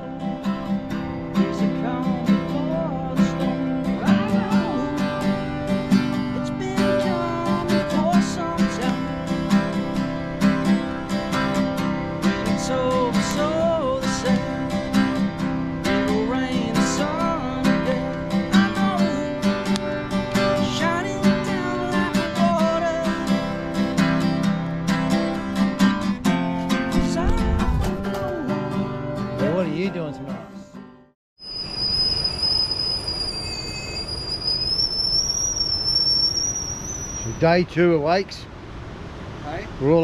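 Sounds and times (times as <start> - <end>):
strummed acoustic guitar: 0.0 - 31.1.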